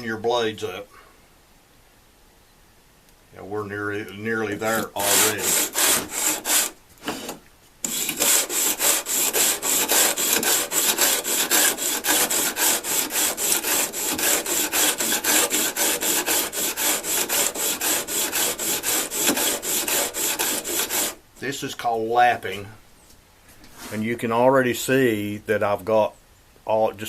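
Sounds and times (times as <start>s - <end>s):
blades scraping on sandpaper: 4.4s - 21.2s.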